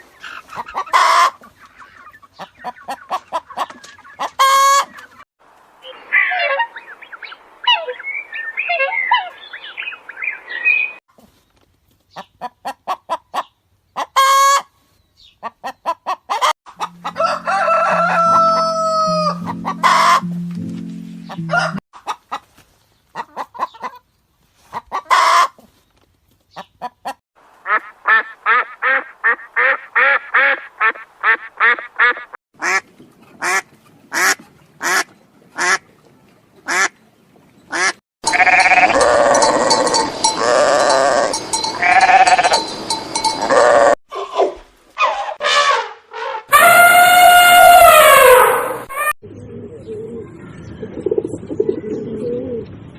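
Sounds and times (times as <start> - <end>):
chickens clucking: 0.0 - 5.3, 12.1 - 25.7, 26.5 - 37.0
rooster-like calls: 16.8 - 20.2, 46.5 - 49.1
low stepped tone: 16.8 - 21.8.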